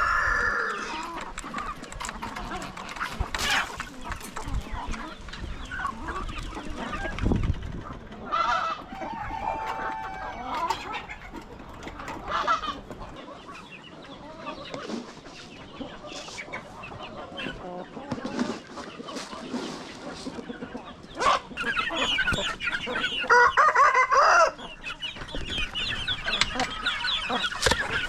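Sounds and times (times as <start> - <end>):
chickens clucking: 0.0 - 28.0
chickens squawking: 0.0 - 28.0.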